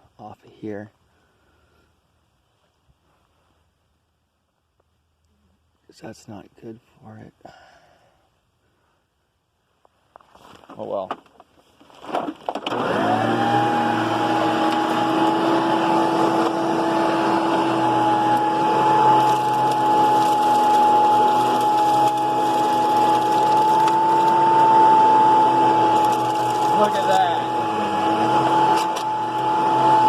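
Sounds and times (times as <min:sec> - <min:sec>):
vacuum cleaner motor whining: 0:12.6 - 0:30.0.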